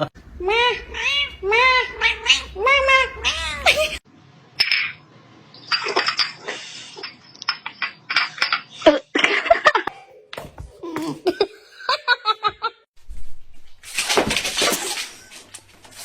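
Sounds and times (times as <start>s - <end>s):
person laughing and giggling: 7.7s - 12.8s.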